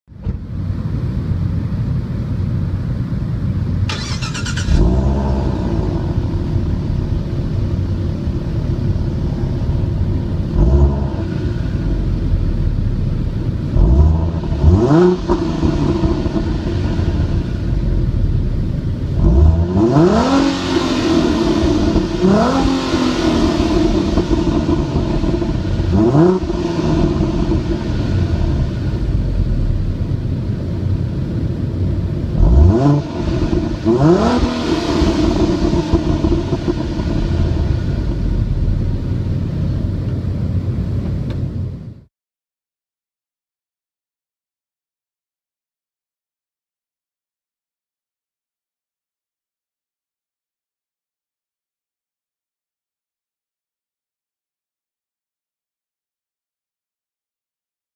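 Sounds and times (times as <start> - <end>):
car engine idling and revving: 0.1 - 42.1.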